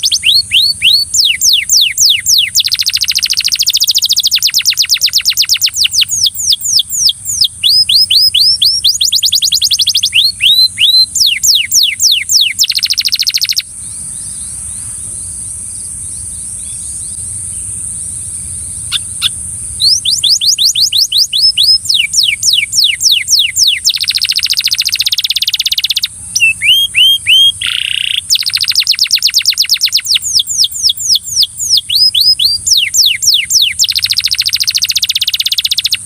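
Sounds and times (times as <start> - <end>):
short bird chirps: 0.0 - 15.0, 18.9 - 36.0
canary singing trills: 0.0 - 36.0
steady high hiss: 12.5 - 22.8.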